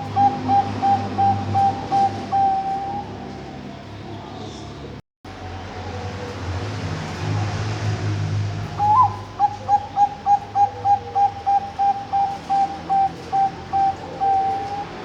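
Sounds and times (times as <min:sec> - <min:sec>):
dove cooing: 0:00.0 - 0:03.6, 0:08.6 - 0:15.0.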